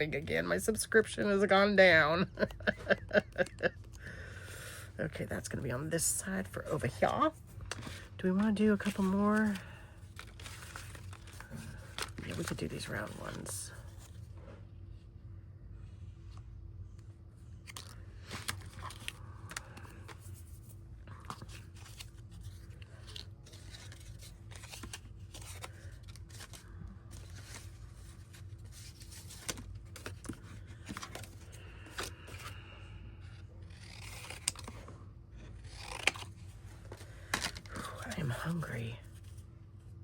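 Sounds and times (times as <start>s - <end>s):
steady low hum: 0.0s - 40.0s
paper rustling: 8.7s - 14.3s, 17.6s - 32.6s
scissors snipping paper: 33.7s - 34.8s.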